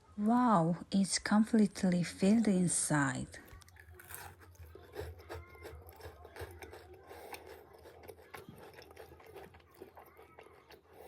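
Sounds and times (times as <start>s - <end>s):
chewing mouth clicks and smacks: 3.4s - 11.0s.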